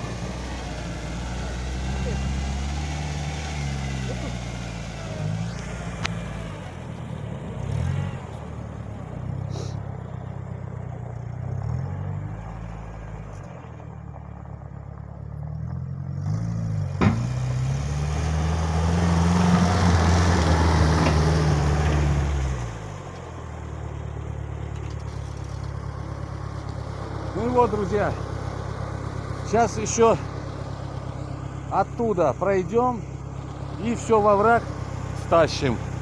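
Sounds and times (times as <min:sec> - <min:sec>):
small tractor engine running: 0:00.0 - 0:36.0.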